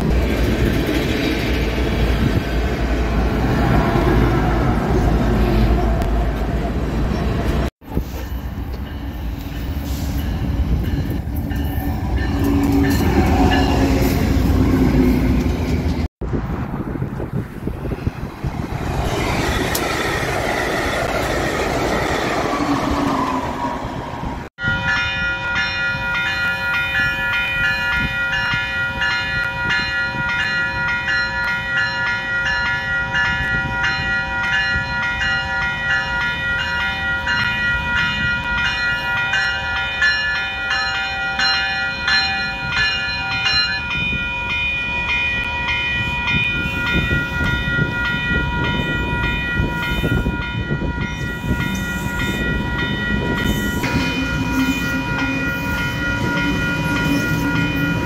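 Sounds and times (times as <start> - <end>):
train passing: 0.0 - 58.0
train rumbling by: 0.0 - 58.0
warning bell ringing: 24.6 - 58.0.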